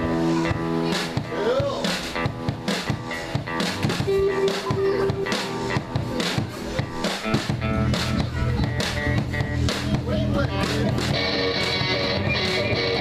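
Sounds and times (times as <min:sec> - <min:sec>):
drum and cymbal hits: 0:00.0 - 0:13.0
rock band playing live: 0:00.0 - 0:13.0
electric guitar held note: 0:04.1 - 0:06.0.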